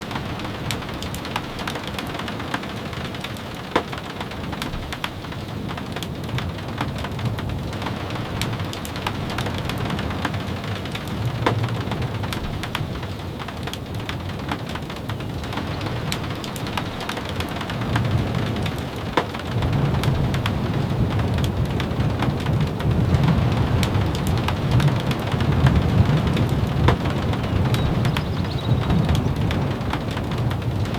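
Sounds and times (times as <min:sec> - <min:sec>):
steady rain: 0:00.0 - 0:30.9
sharp taps and clicks: 0:26.4 - 0:28.3.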